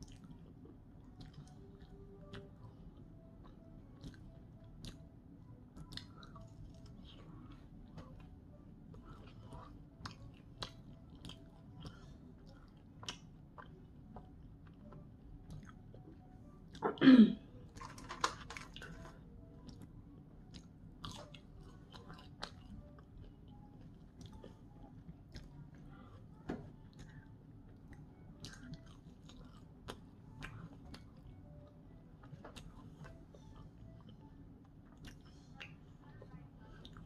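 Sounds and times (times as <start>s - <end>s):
person chewing crispy food: 0.0s - 5.0s, 5.8s - 8.3s, 8.9s - 17.0s, 17.6s - 31.4s, 32.2s - 37.0s.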